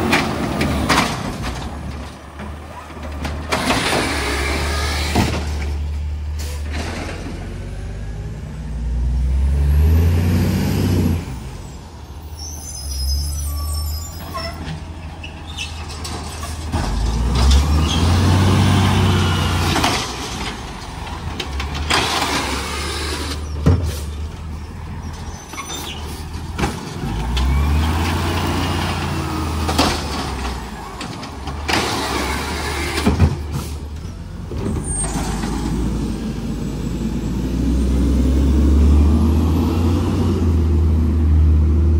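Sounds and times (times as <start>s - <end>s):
garbage truck engine revving: 0.0s - 11.6s, 15.5s - 41.9s
high squeal: 11.6s - 15.9s.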